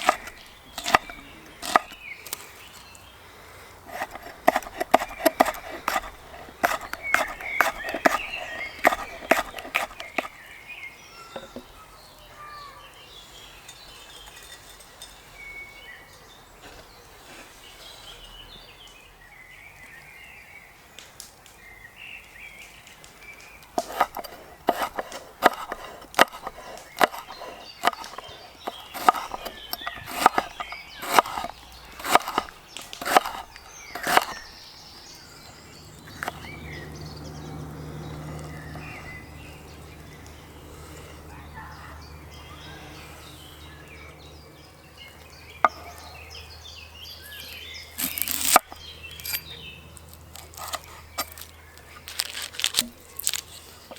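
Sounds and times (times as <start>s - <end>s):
chopping wood: 0.0s - 2.1s, 3.9s - 10.4s, 22.9s - 34.5s, 36.1s - 36.6s, 48.0s - 49.4s, 50.4s - 53.5s
faint birdsong: 0.0s - 53.9s.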